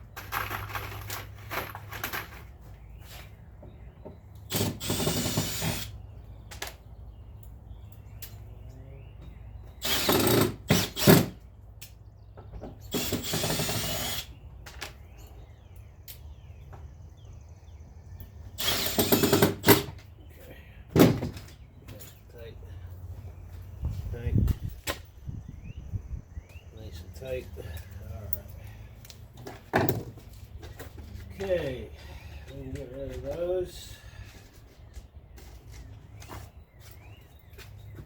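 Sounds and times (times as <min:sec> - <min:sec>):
power drill driving screws: 0:04.5 - 0:05.9, 0:09.8 - 0:11.4, 0:12.9 - 0:14.3, 0:18.6 - 0:20.0.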